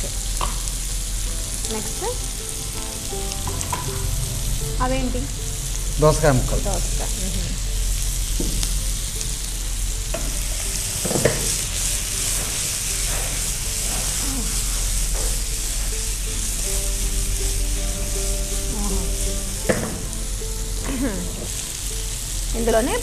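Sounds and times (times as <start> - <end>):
meat frying in oil: 0.0 - 23.0
spatula stirring in pan: 9.5 - 20.2.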